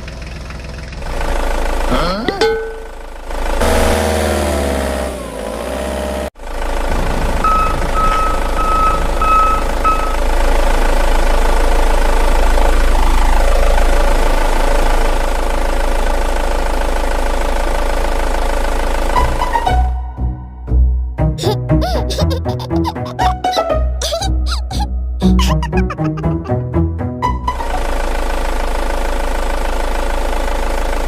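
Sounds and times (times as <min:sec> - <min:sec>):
truck engine running: 0:00.0 - 0:31.0
short reversing alarm beeps: 0:07.4 - 0:10.2.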